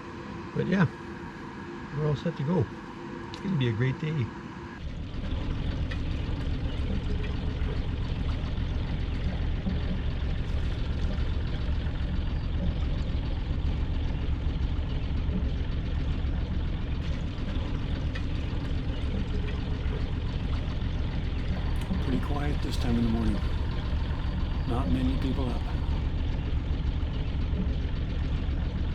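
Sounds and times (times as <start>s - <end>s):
boat engine rumbling: 0.0s - 26.2s.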